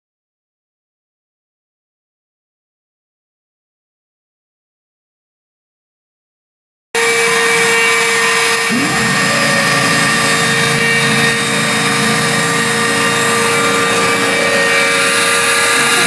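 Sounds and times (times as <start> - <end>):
machine spindle whining: 7.0 - 16.0
short rising tone: 7.0 - 16.0.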